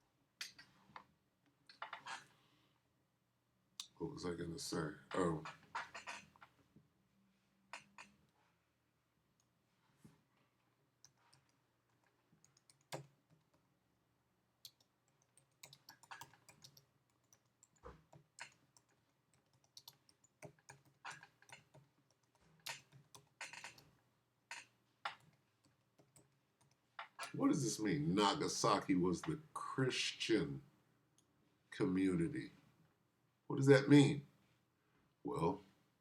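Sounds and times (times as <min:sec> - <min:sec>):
faint typing on computer keyboard: 0:11.0 - 0:13.7, 0:14.6 - 0:27.4.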